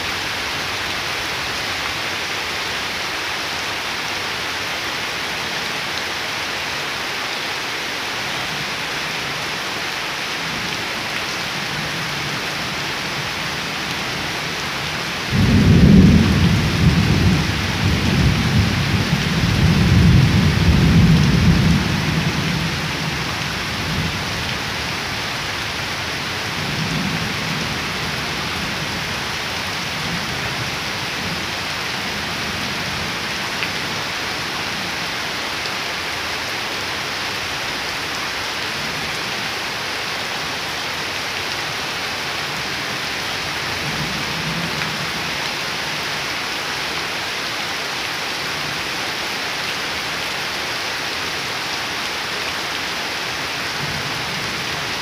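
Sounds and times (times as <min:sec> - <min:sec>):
thunder rumbling: 0:15.3 - 0:22.3.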